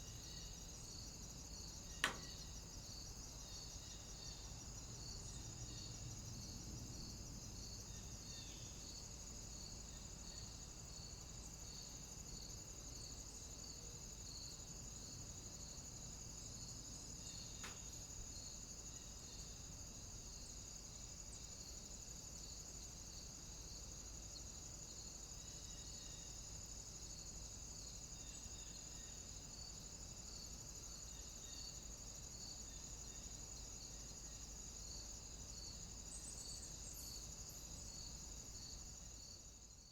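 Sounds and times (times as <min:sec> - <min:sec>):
cicadas and insects droning: 0:00.0 - 0:39.9
faint click: 0:02.0 - 0:02.4, 0:17.6 - 0:17.8.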